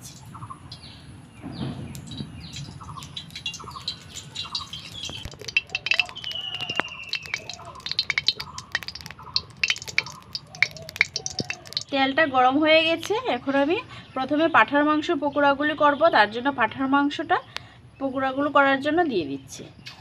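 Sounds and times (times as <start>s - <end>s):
birds chirping and calling: 0.0s - 12.0s
sharp crackling clicks: 1.9s - 12.0s
whistled bird note: 6.0s - 7.8s.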